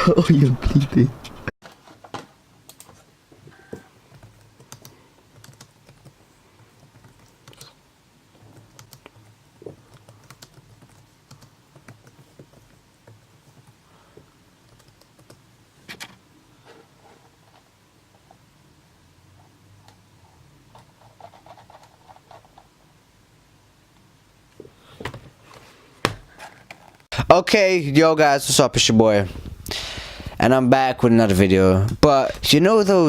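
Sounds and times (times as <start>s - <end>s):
keyboard keys clicking: 4.1s - 6.2s, 9.9s - 13.7s.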